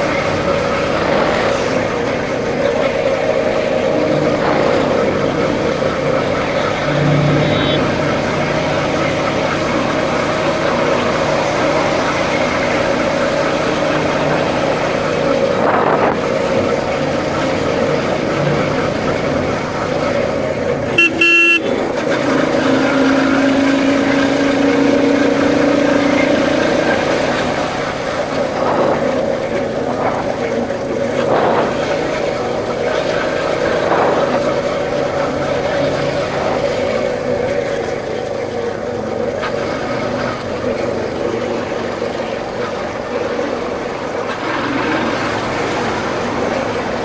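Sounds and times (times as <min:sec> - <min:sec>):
motorcycle engine running: 0:00.0 - 0:47.0
horn honk: 0:20.9 - 0:24.3.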